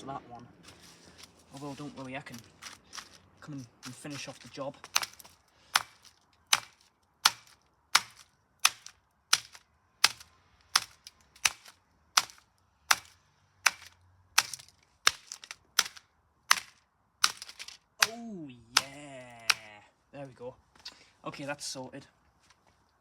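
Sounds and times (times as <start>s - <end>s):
plastic case being struck: 3.8s - 18.2s.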